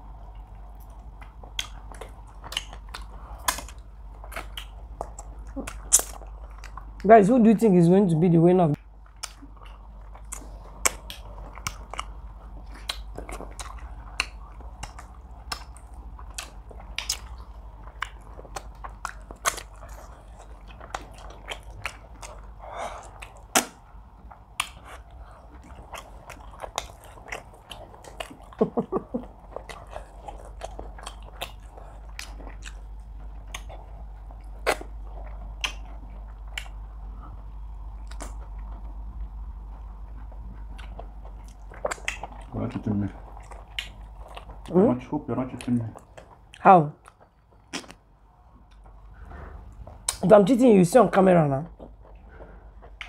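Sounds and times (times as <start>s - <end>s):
steady low hum: 0.0s - 53.0s
wet mouth clicks and lip smacks: 0.9s - 6.8s, 9.1s - 19.8s, 23.0s - 23.8s, 24.5s - 25.0s, 34.4s - 36.8s, 38.0s - 38.6s, 40.6s - 42.5s, 45.6s - 48.0s.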